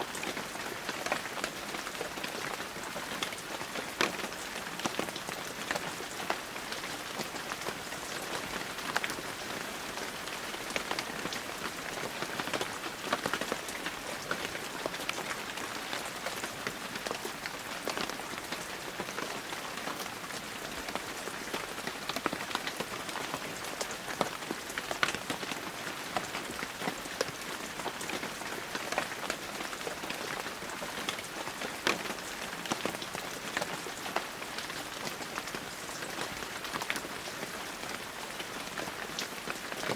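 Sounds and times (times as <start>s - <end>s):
raindrops pattering on a surface: 0.0s - 39.9s.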